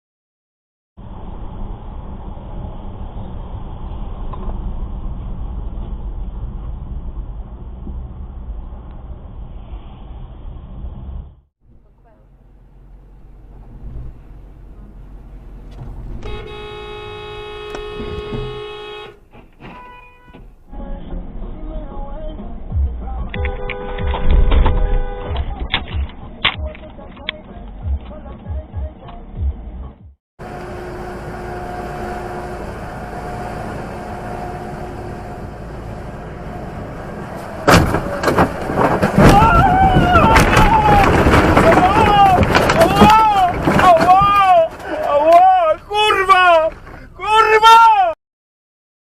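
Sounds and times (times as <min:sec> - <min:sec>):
vehicle driving: 0:01.0 - 0:47.2
road and engine rumble: 0:01.0 - 0:48.2
car horn blast: 0:16.2 - 0:20.5, 0:23.4 - 0:25.5
loud bangs: 0:37.6 - 0:44.8.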